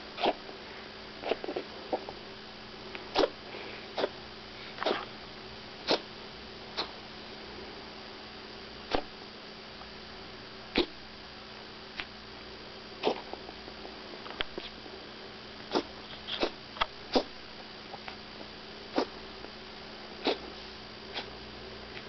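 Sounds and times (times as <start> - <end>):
puppy coughing: 0.2 - 0.4, 3.1 - 3.4, 4.8 - 5.1, 5.8 - 6.1, 10.8 - 11.0, 13.0 - 13.4, 15.7 - 17.3, 18.9 - 19.2, 20.2 - 20.5.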